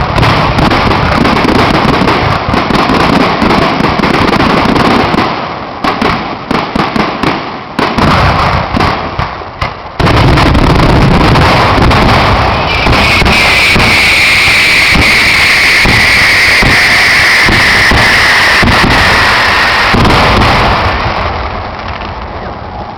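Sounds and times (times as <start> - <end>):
fireworks bangs and crackles: 0.0 - 22.9
high shrill whistle: 12.6 - 20.0.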